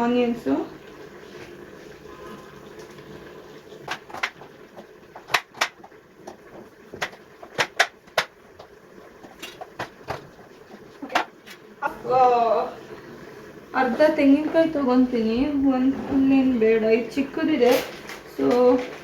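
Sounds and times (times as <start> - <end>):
kitchen items clicking and knocking: 3.8 - 11.6.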